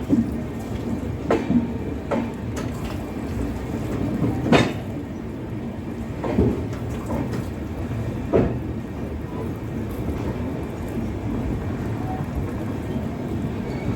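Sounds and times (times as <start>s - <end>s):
wheels clacking over rail joints: 0.0s - 5.0s
train rumble: 0.0s - 13.9s.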